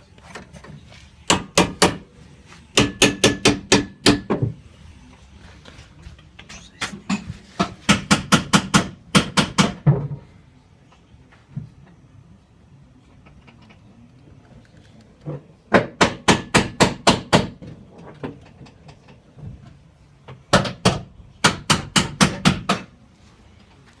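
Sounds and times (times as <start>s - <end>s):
hammer striking metal: 2.8s - 4.4s.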